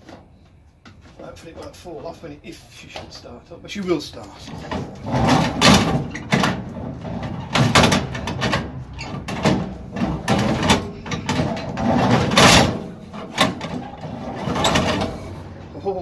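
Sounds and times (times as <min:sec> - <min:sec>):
engine turned over by hand: 0:04.5 - 0:15.5.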